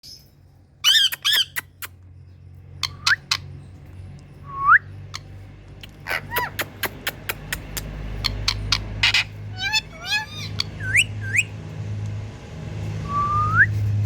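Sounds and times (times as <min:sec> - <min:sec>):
parrot squawking: 0:00.8 - 0:01.9, 0:05.1 - 0:11.5
parrot clicks: 0:05.8 - 0:08.0
parrot rising whistles: 0:09.0 - 0:11.5, 0:13.0 - 0:13.8.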